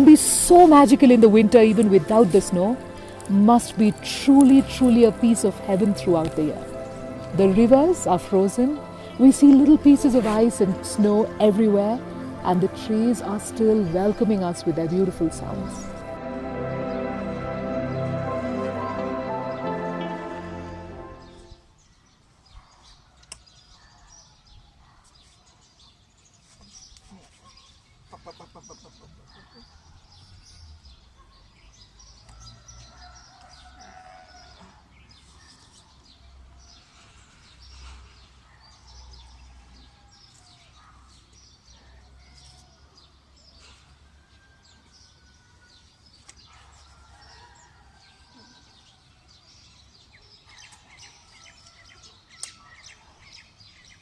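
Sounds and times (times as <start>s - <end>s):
small birds chirping: 21.2s - 43.8s, 44.9s - 54.0s.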